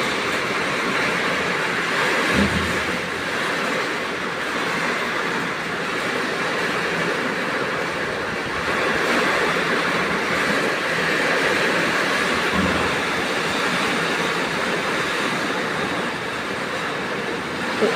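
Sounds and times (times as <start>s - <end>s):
heavy rain in strong wind: 0.0s - 17.9s
low thump: 2.3s - 2.8s.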